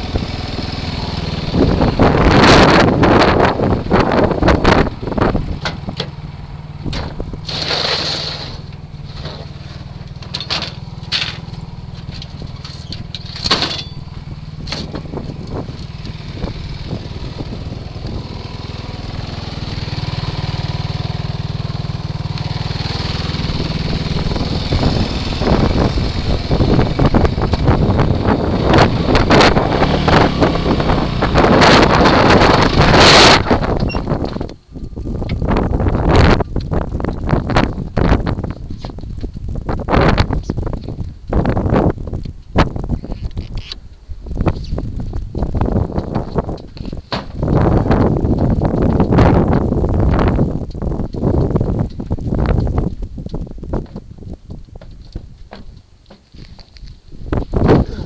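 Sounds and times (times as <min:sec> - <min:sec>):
wind buffeting microphone: 0:00.0 - 0:07.7, 0:08.4 - 0:58.0
atv engine running: 0:00.0 - 0:58.0.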